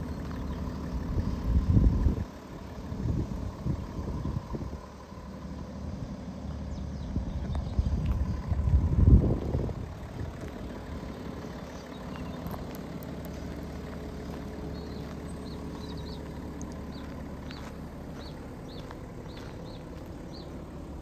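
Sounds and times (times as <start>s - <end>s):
diesel engine idling: 0.0s - 21.0s
bird chirps: 11.4s - 12.7s, 14.3s - 20.6s.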